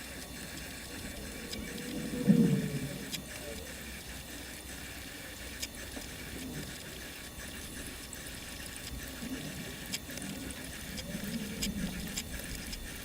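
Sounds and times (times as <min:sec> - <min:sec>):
coffee machine hissing: 0:00.0 - 0:13.0
faint ticks: 0:00.0 - 0:13.0.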